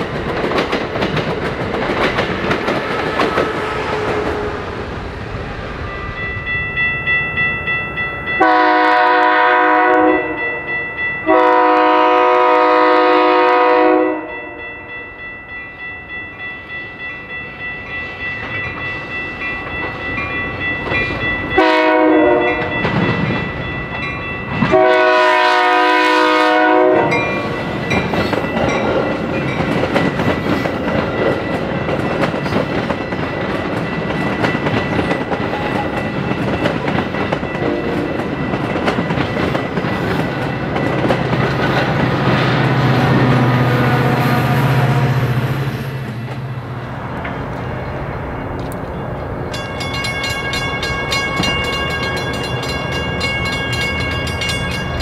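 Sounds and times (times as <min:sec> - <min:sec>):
train wheels rumbling on rails: 0:00.0 - 0:13.9, 0:16.3 - 0:55.0
crossing bell ringing: 0:05.7 - 0:55.0
train horn blasts: 0:08.4 - 0:14.8, 0:21.6 - 0:22.8, 0:24.7 - 0:27.6, 0:37.6 - 0:38.1, 0:42.8 - 0:45.8.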